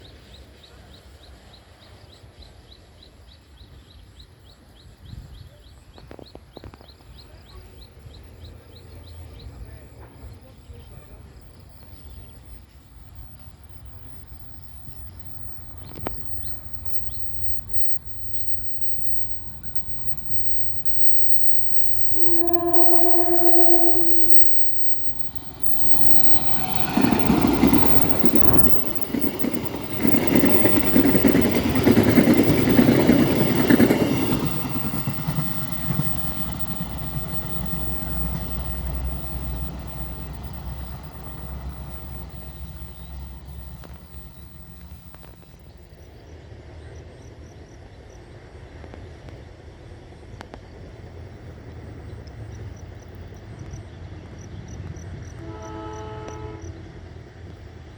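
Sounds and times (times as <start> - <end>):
train wheels clattering: 13.1 - 45.4
train horn: 15.8 - 29.0, 30.0 - 44.0, 55.4 - 57.0.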